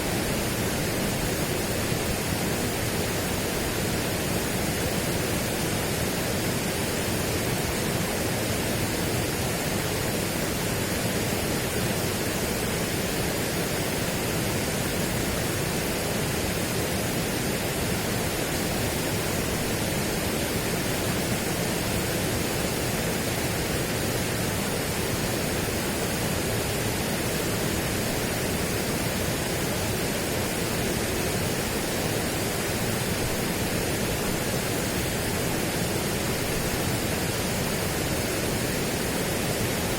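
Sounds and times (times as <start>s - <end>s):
steady rushing noise: 0.0s - 39.9s.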